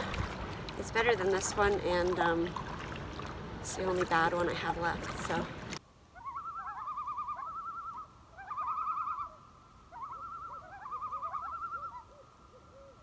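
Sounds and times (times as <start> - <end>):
loons tremolo calling: 6.2 - 13.0.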